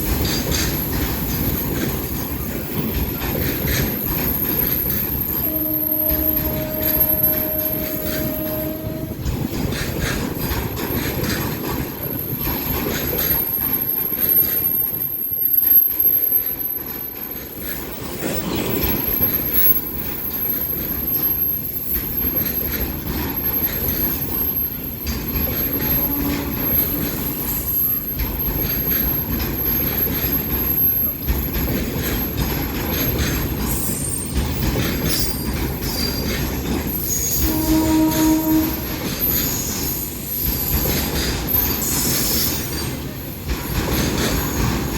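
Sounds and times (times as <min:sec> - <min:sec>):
train wheels on track: 0:00.0 - 0:44.9
high wheel squeal: 0:01.0 - 0:43.2
brief pitched tone: 0:04.1 - 0:09.6.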